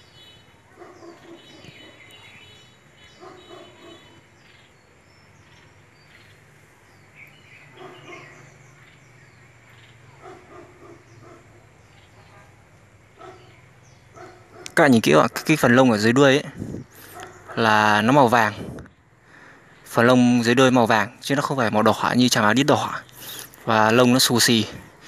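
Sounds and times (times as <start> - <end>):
small birds chirping: 0.0 - 25.0
distant dog barking: 0.6 - 4.4, 7.6 - 8.7, 9.8 - 16.1, 16.9 - 18.1.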